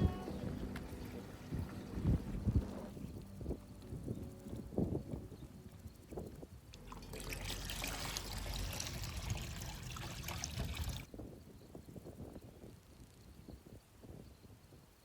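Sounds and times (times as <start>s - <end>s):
water trickling: 3.2s - 11.1s.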